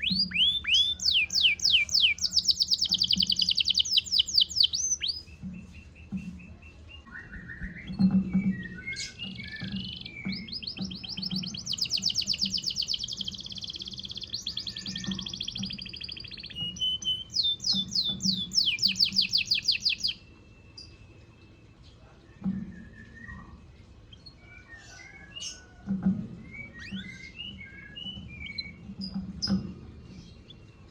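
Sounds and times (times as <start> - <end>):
canary chirps: 0.0 - 22.0
canary singing trills: 0.0 - 22.0.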